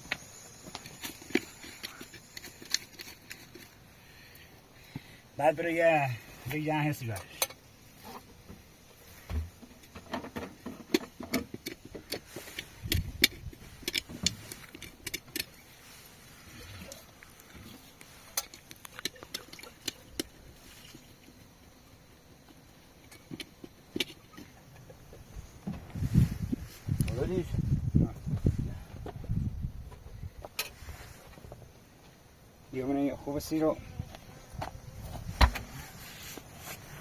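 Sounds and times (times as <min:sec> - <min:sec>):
objects clicking and knocking: 0:00.1 - 0:03.8, 0:09.8 - 0:15.6, 0:17.6 - 0:20.4.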